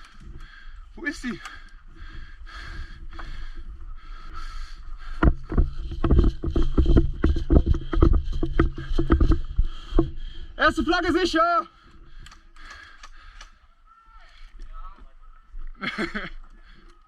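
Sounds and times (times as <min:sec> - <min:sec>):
running footfalls: 0:02.0 - 0:10.4
gear jostling against camera: 0:04.2 - 0:10.2.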